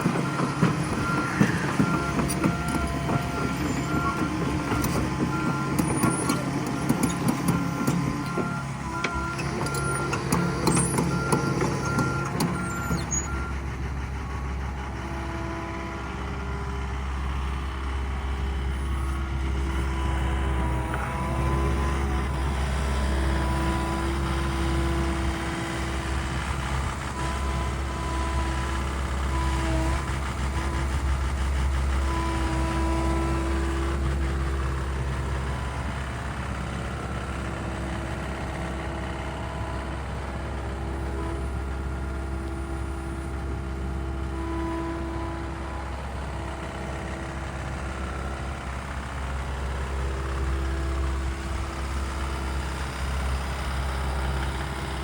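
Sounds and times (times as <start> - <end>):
hydraulics whining: 0.0 - 49.2
excavator diesel engine running: 0.0 - 55.0.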